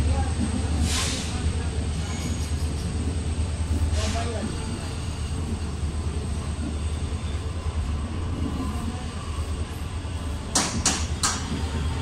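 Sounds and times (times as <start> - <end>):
train coaches rumbling past: 0.0 - 12.0
sharp clacks: 10.5 - 11.6.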